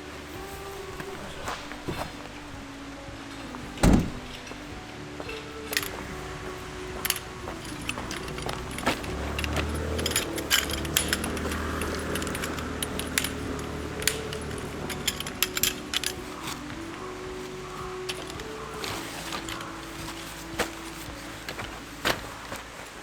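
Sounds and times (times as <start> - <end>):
sharp metallic clicks and clinks: 7.0 - 16.2.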